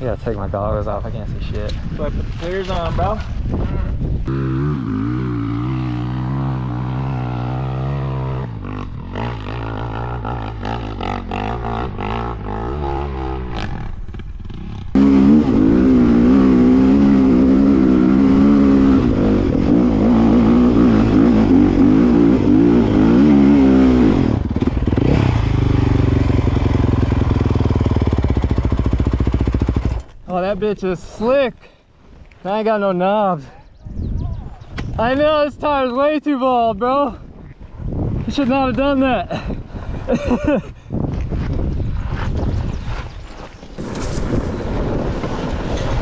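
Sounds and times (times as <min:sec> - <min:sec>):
dirt bike engine revving: 0:04.3 - 0:30.0, 0:43.8 - 0:45.3.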